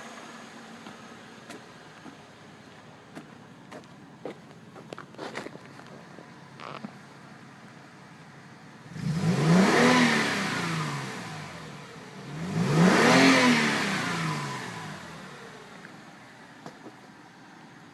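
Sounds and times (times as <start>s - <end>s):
car engine revving: 8.8s - 16.1s.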